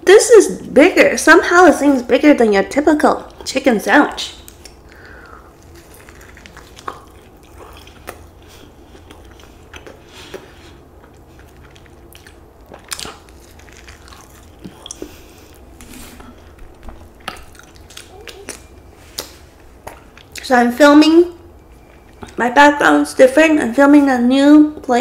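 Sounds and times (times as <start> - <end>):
chewing and biting sandwich: 4.5 - 20.4, 21.5 - 22.4
crunching breaded patty: 4.5 - 20.4.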